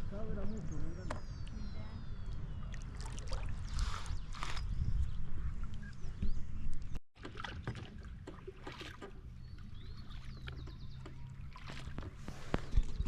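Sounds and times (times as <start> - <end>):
paddle splashes and drips: 2.7 - 4.6, 7.1 - 13.0.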